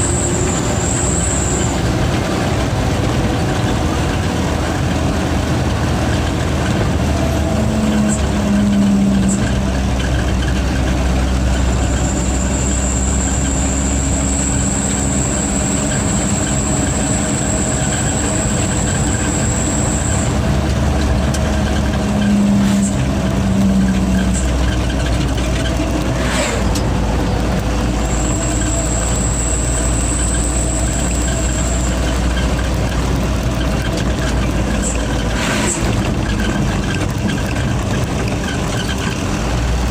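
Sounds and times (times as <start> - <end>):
high turbo whistle: 0.0 - 1.9, 11.7 - 20.4, 28.0 - 32.0
truck diesel engine running: 0.0 - 39.9.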